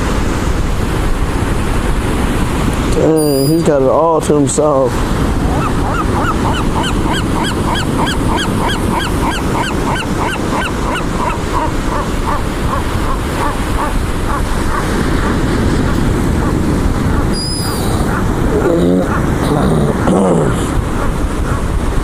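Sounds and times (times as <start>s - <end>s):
gull calling: 3.2s - 3.7s, 5.4s - 21.6s.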